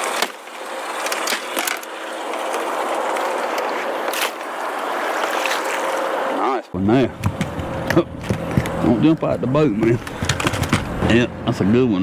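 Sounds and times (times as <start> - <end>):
knocks and clatters in boat: 7.1 - 11.2.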